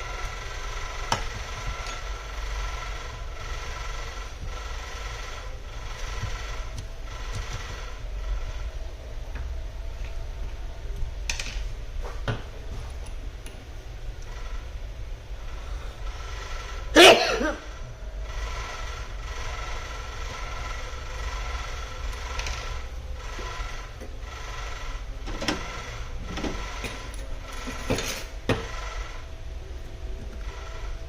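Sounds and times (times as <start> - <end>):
steady hum: 0.0 - 31.0
tools clattering on work surface: 26.4 - 28.6.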